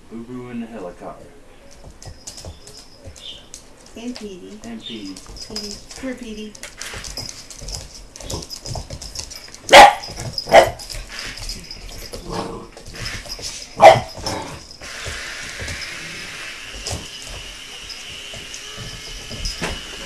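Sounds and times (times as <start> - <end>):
puppy barking: 9.6 - 10.9, 13.8 - 14.5.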